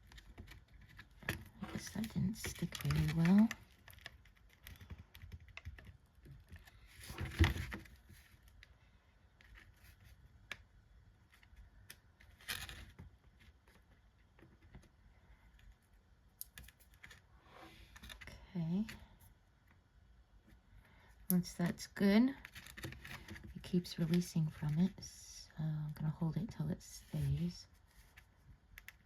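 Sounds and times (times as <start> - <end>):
chipboard pieces tapping and clicking: 0.0 - 6.7.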